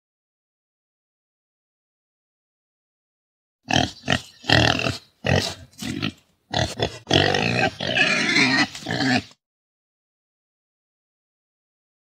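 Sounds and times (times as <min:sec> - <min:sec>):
pig grunting: 0:03.7 - 0:09.4.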